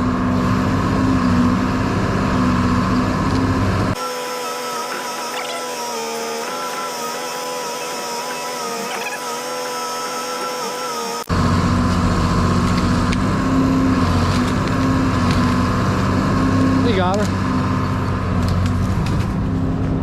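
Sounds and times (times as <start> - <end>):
deep running engine: 0.0 - 4.0, 9.3 - 20.0
engine hum: 0.0 - 20.0.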